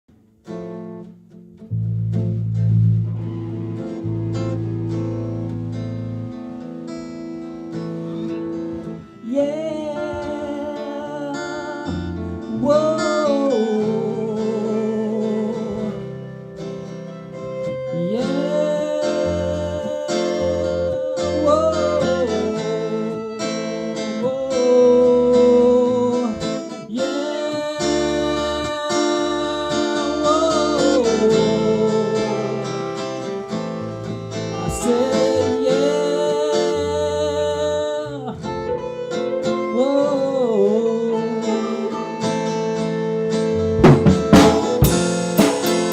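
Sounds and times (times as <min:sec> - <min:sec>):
acoustic guitar strumming: 0:00.1 - 0:45.9
lead guitar: 0:00.1 - 0:45.9
man singing: 0:09.0 - 0:16.4, 0:17.6 - 0:33.8, 0:34.4 - 0:42.5.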